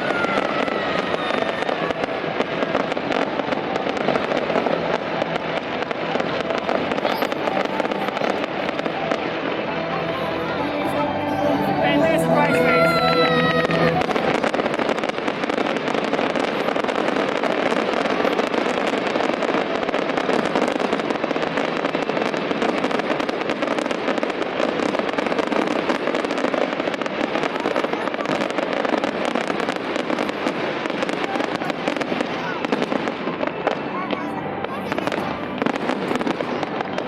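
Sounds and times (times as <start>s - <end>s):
fireworks crackling and banging: 0.0s - 37.0s.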